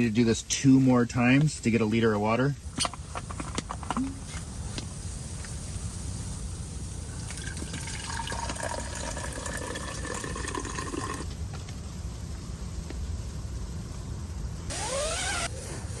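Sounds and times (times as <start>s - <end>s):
water pouring into a bottle: 7.1s - 11.3s.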